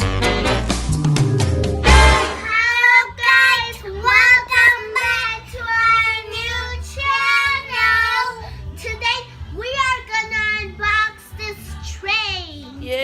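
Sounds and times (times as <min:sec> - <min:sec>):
child singing: 0:02.4 - 0:12.8.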